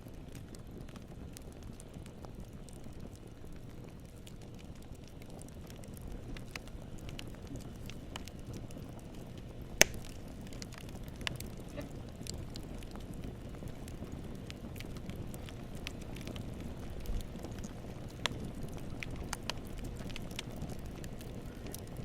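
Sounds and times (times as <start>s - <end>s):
campfire flames rumbling: 0.0s - 22.0s
fire crackles: 0.0s - 22.0s
loud fire pop: 9.8s - 10.2s.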